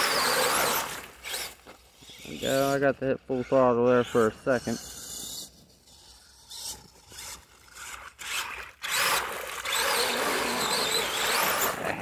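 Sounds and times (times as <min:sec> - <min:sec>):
tires churning through mud: 0:00.0 - 0:02.9, 0:06.1 - 0:12.0
electric motor whining: 0:00.0 - 0:12.0.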